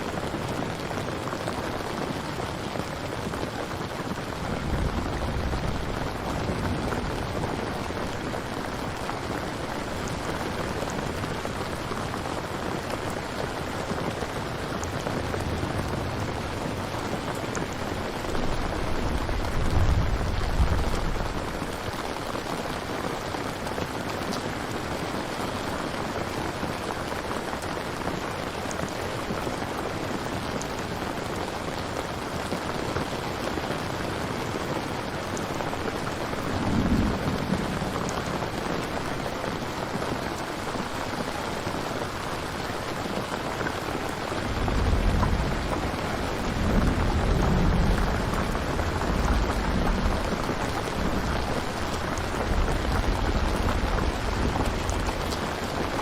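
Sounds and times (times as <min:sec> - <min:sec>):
steady rain falling: 0:00.0 - 0:56.0
low thunder rumbling: 0:04.0 - 0:22.8, 0:35.6 - 0:41.3, 0:43.7 - 0:56.0.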